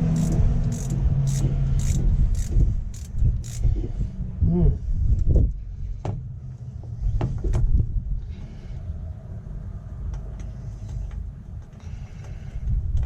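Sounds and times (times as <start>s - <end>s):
metal parts clicking and scraping: 0.0s - 3.7s
steady low rumble: 0.0s - 13.0s.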